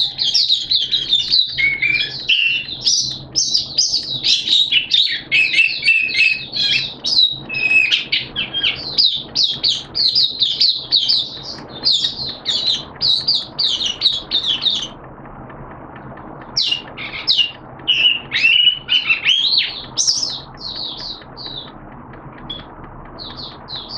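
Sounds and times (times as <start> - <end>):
songbird chirping: 0.0 - 15.0, 16.0 - 23.9.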